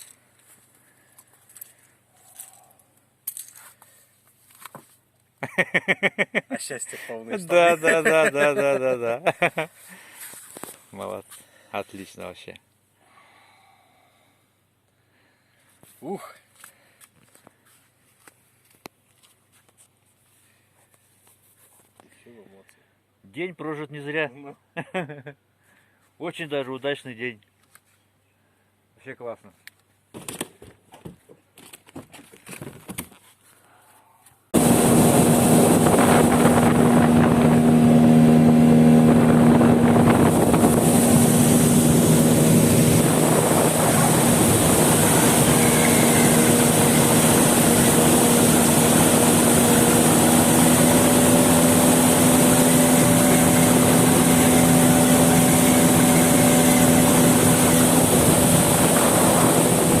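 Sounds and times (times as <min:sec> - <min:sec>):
wind: 0:00.0 - 1:00.0
outboard motor running: 0:07.5 - 0:08.8, 0:34.6 - 1:00.0
faint handling sounds: 0:09.7 - 0:12.0, 0:15.6 - 0:22.8, 0:27.4 - 0:28.2
rushing water: 0:34.6 - 1:00.0.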